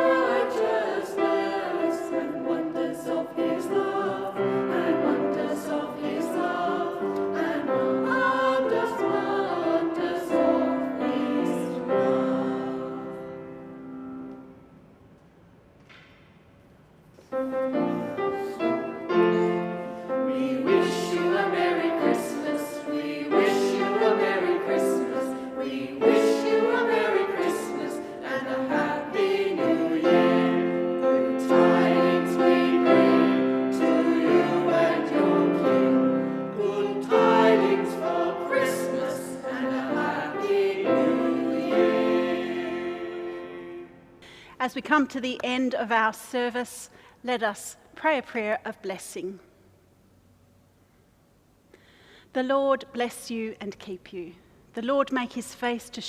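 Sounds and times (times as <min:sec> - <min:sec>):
choir singing: 0:00.0 - 0:14.5, 0:17.4 - 0:44.2
piano accompaniment: 0:17.3 - 0:44.2.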